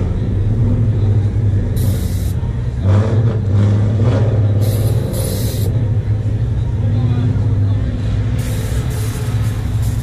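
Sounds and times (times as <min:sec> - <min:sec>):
car engine idling: 0:00.0 - 0:02.8.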